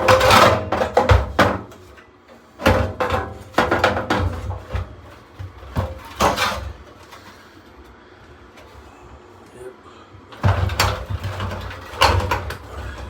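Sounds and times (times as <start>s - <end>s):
sheet metal clanks and knocks: 0.0s - 1.9s, 2.6s - 5.0s, 10.4s - 13.0s.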